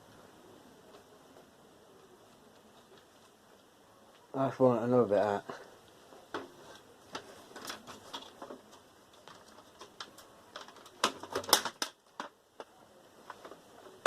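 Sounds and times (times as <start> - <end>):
clicks and knocks of computer parts: 6.3 - 13.6.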